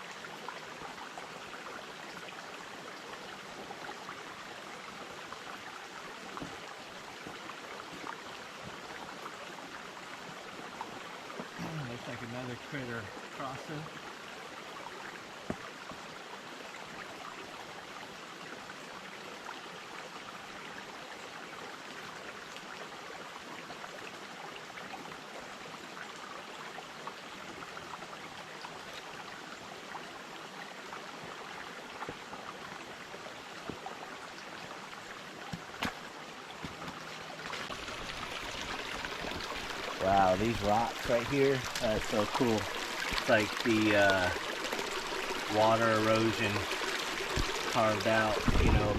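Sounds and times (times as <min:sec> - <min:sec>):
creek babbling over rocks: 0:00.0 - 0:48.9.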